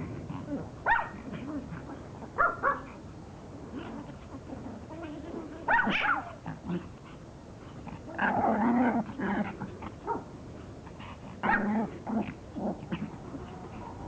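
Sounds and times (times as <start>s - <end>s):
dogs growling: 0.0s - 14.0s
dogs barking and yipping: 0.8s - 1.8s, 2.4s - 3.0s, 5.2s - 6.4s, 11.4s - 11.9s.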